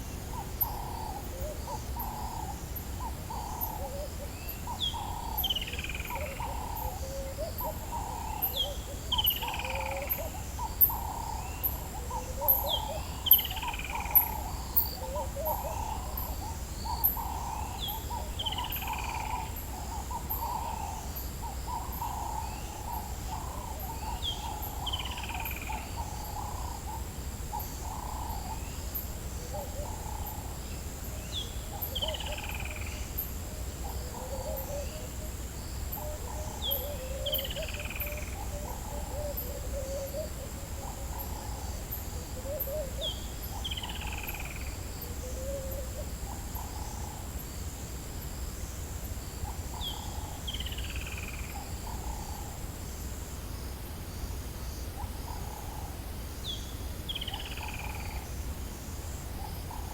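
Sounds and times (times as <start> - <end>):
low bird calls: 0.0 - 28.8, 35.9 - 47.2
insect drone: 0.0 - 59.9.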